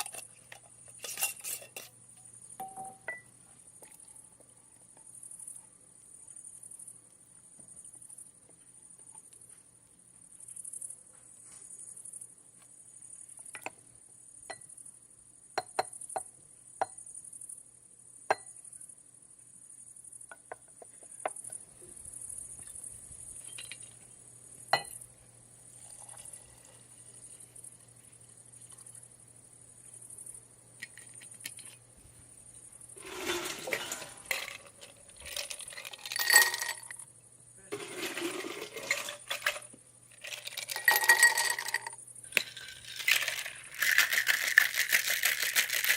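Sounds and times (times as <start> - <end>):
loud rattling and handling: 33.0 - 37.0, 37.8 - 45.9
small hard objects clinking: 33.0 - 37.1, 37.7 - 45.9.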